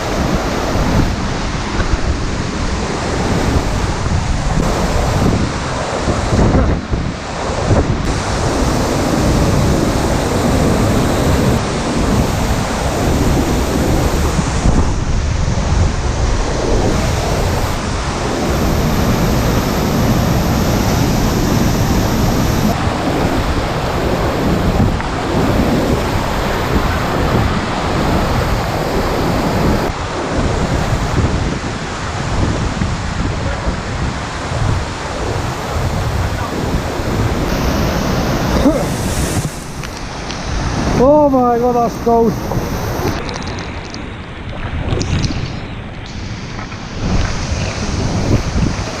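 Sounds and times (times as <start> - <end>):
wind buffeting microphone: 0.0 - 49.0
waterfall rushing: 2.4 - 6.5, 7.2 - 15.1, 16.0 - 32.4, 34.4 - 43.5.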